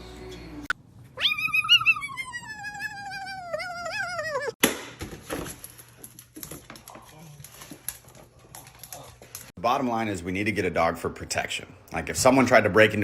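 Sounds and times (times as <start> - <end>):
cat yowling: 1.2 - 4.6.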